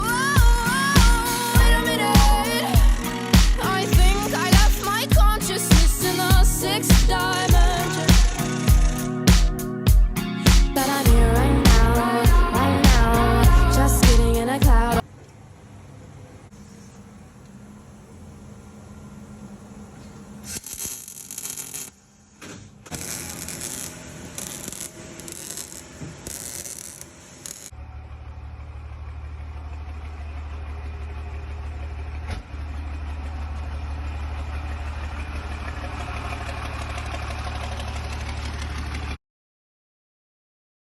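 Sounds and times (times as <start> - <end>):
diesel truck engine idling: 27.8 - 39.1.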